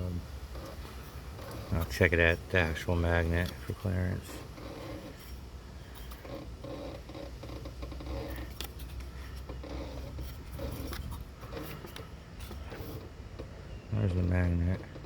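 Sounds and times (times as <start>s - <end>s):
low steady hum: 0.0s - 15.0s
scratchy rubbing and clicks: 0.0s - 15.0s.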